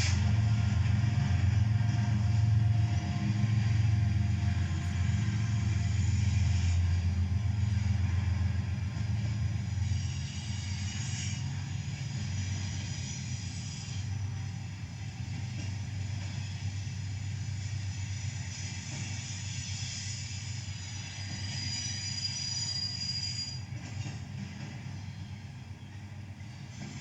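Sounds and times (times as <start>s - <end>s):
locomotive engines rumbling: 0.0s - 27.0s.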